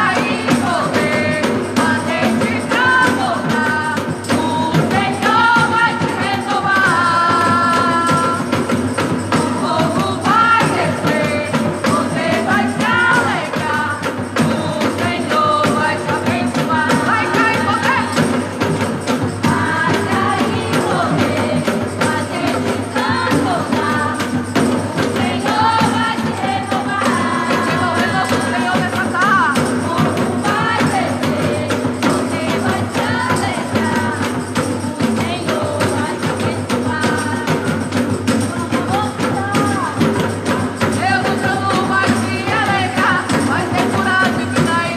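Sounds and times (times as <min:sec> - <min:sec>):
worship band playing: 0:00.0 - 0:35.8
tambourine shaking rhythm: 0:00.0 - 0:44.9.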